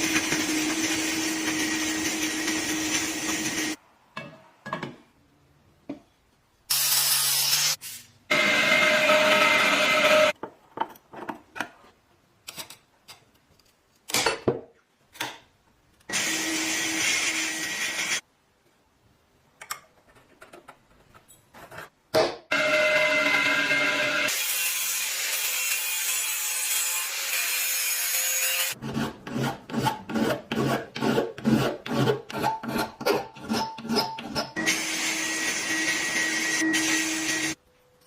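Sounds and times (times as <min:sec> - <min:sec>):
power tool grinding metal: 0:06.7 - 0:10.3, 0:34.6 - 0:37.6.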